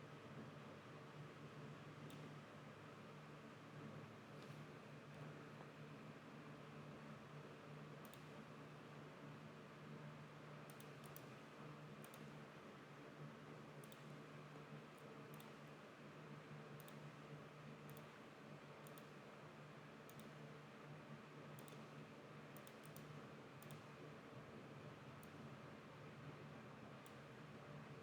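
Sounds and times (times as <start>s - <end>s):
computer mouse clicks: 2.0s - 2.4s, 8.0s - 8.4s, 10.7s - 11.3s, 12.0s - 12.3s, 13.8s - 14.1s, 15.3s - 15.6s, 16.8s - 17.1s, 17.8s - 18.1s, 18.8s - 19.2s, 20.0s - 20.4s, 21.6s - 21.9s, 22.5s - 23.9s.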